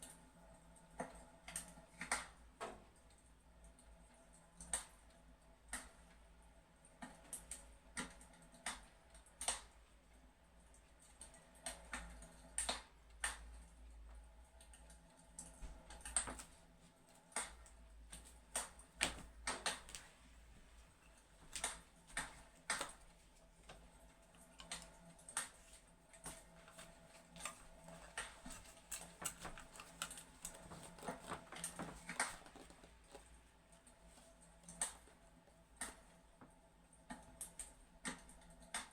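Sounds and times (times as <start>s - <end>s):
fireplace crackling: 15.7s - 36.1s.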